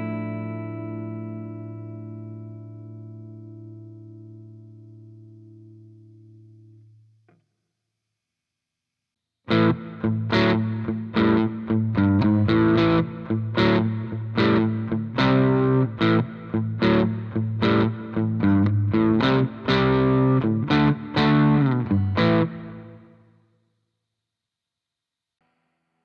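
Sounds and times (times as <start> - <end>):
electric guitar chords: 0.0 - 6.9, 9.5 - 23.2.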